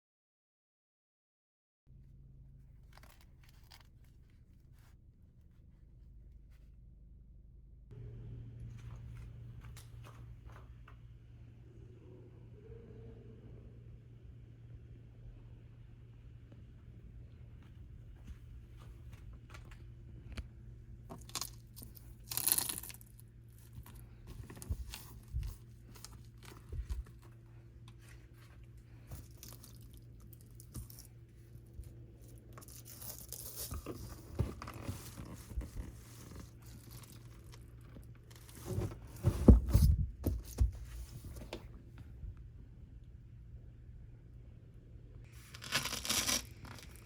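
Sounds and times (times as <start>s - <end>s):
objects rustling and knocking: 23.6s - 41.8s.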